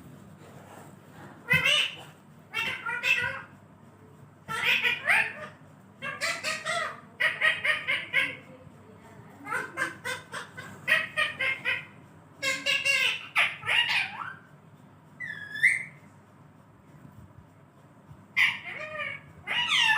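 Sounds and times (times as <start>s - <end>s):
parrot squawking and chattering: 1.4s - 3.6s, 4.4s - 8.6s, 9.4s - 14.6s, 15.2s - 16.1s, 18.3s - 19.9s.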